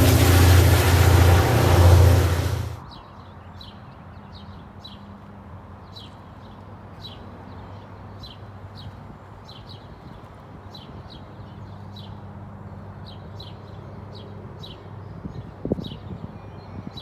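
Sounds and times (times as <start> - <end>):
low steady hum: 0.0 - 2.8.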